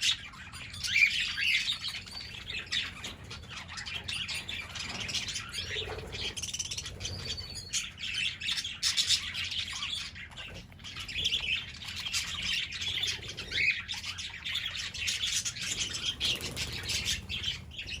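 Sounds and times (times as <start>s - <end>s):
parrots chirping and chattering: 0.0s - 18.0s.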